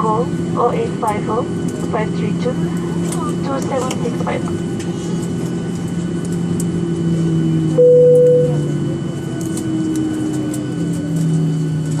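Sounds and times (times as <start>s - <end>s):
aircraft cabin hum: 0.0s - 12.0s
electronic cabin tone: 7.7s - 9.0s.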